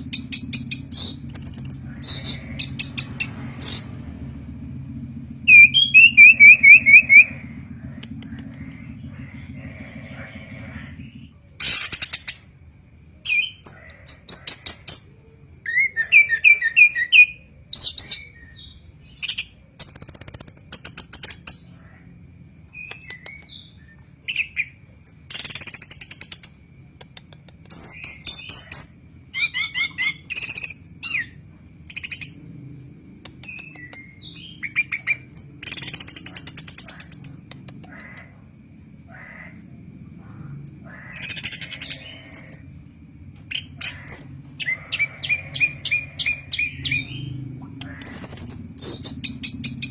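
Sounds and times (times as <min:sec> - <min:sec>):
thrush singing: 0:00.0 - 0:11.8, 0:39.5 - 0:49.9.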